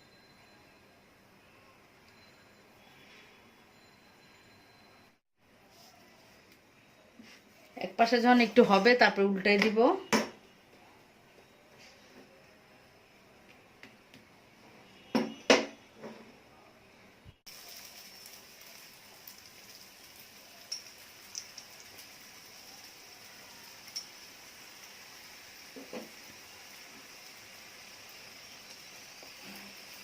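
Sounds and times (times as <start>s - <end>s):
faint hiss of frying: 17.5s - 30.0s.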